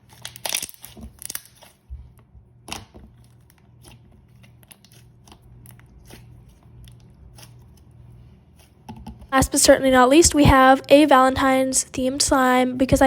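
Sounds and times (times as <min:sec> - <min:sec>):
slime squished by hand: 0:00.0 - 0:07.9.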